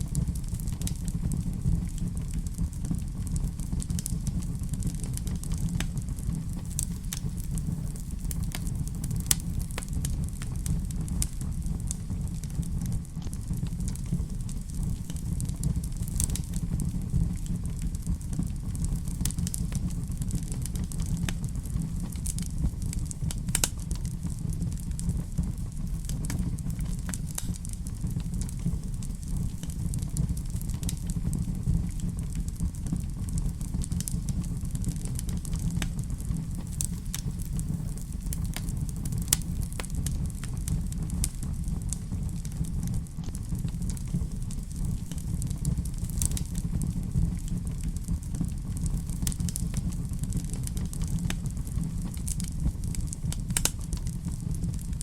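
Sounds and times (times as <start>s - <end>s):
fire rumbling: 0.0s - 55.0s
wood fire crackles and pops: 0.0s - 55.0s.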